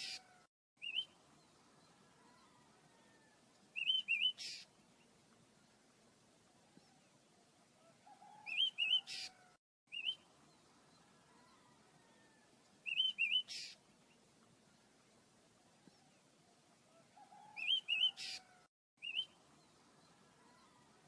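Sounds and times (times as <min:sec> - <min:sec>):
short harsh bird call: 0:00.0 - 0:00.4, 0:04.2 - 0:04.7, 0:08.8 - 0:09.5, 0:13.2 - 0:13.8, 0:17.8 - 0:18.6
small birds chirping: 0:00.0 - 0:05.8, 0:08.2 - 0:15.1, 0:17.2 - 0:21.0.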